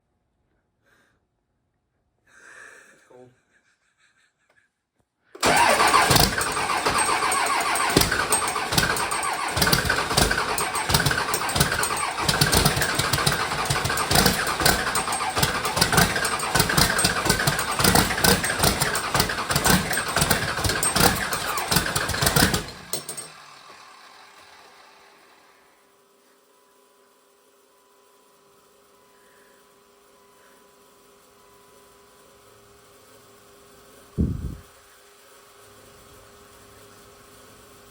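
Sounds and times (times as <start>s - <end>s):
diesel engine knocking: 5.4s - 23.4s.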